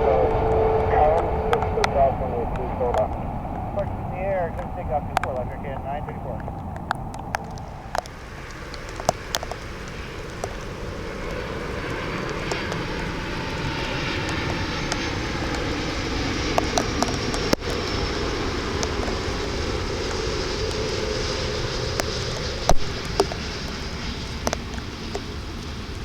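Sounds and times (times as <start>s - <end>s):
jet engines rushing: 0.0s - 26.0s
wind noise: 0.0s - 26.0s
sharp ticks: 6.4s - 18.0s, 21.8s - 26.0s.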